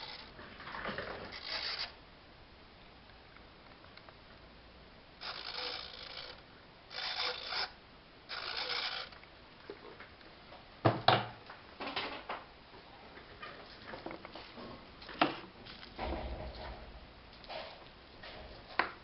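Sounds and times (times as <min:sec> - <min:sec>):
small mechanism whirring: 0:00.0 - 0:00.4, 0:01.3 - 0:02.0, 0:05.2 - 0:09.2.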